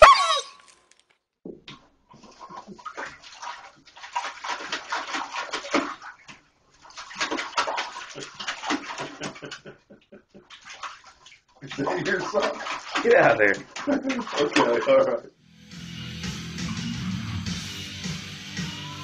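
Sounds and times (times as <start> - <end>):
dog lapping water: 2.1 - 15.0.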